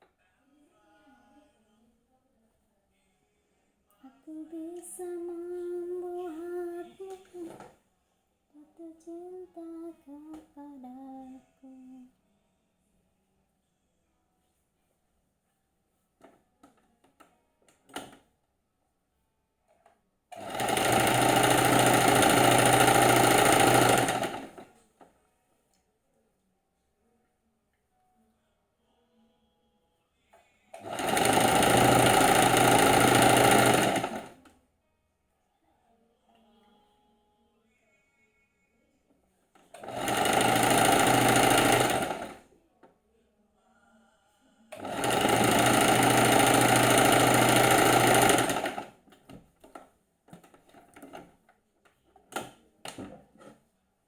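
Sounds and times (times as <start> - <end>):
person humming: 3.9 - 7.6, 8.5 - 12.2
sewing machine stitching: 7.0 - 7.7, 20.3 - 24.7, 30.7 - 34.4, 39.6 - 42.4, 44.7 - 49.0.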